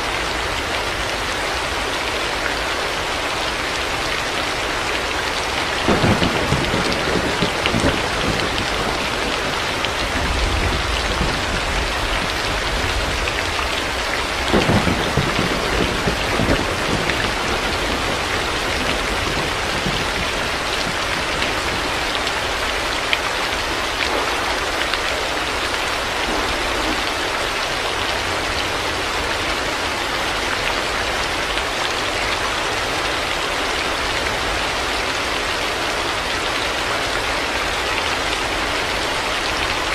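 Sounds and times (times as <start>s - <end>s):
heavy rain falling: 0.0s - 39.9s
low rolls of thunder: 5.7s - 22.8s, 24.0s - 28.7s.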